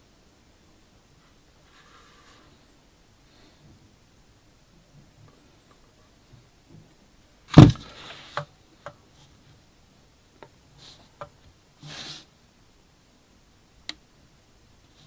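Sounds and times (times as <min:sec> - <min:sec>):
thud on hard surface: 0:07.6 - 0:07.9.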